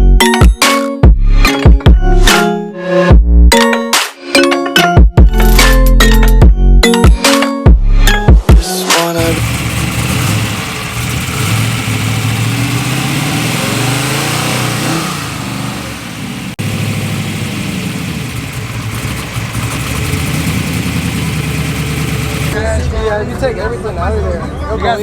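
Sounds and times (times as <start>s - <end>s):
truck engine revving: 9.2s - 23.4s.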